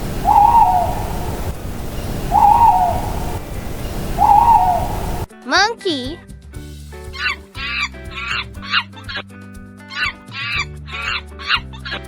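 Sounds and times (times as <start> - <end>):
owl hooting: 0.0 - 5.3
steady background hiss: 0.0 - 5.3.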